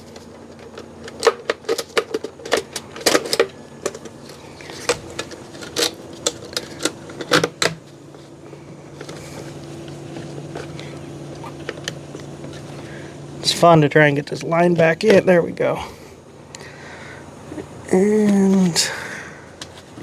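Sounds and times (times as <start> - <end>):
plastic parts clicking and knocking: 0.0 - 7.9
faint steady hum: 0.0 - 20.0.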